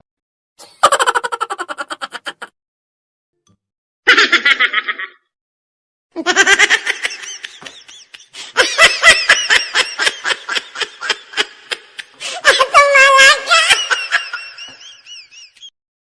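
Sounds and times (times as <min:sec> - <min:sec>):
high-pitched laughter: 0:00.8 - 0:02.6, 0:04.1 - 0:05.3, 0:06.2 - 0:15.7.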